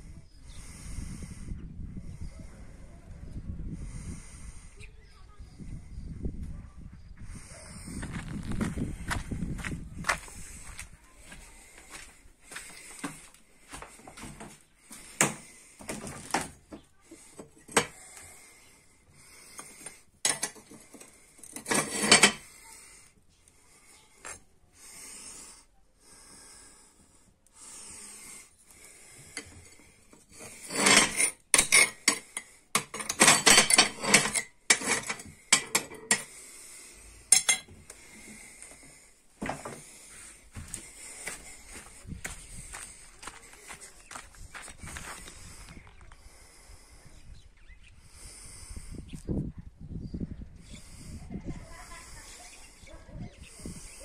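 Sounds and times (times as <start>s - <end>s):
hard objects clattering and scraping: 12.5s - 18.2s, 19.4s - 22.7s, 29.2s - 36.4s, 37.2s - 45.5s.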